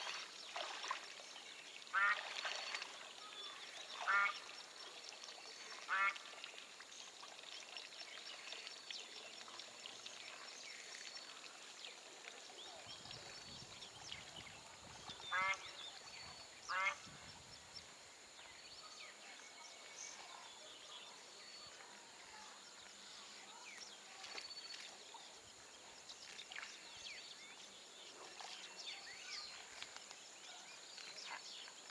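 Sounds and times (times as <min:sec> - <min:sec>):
waterfowl quacking honks: 0:01.9 - 0:02.4, 0:04.0 - 0:04.4, 0:05.8 - 0:06.3, 0:15.3 - 0:15.8, 0:16.7 - 0:17.1
small birds chirping: 0:07.5 - 0:31.9.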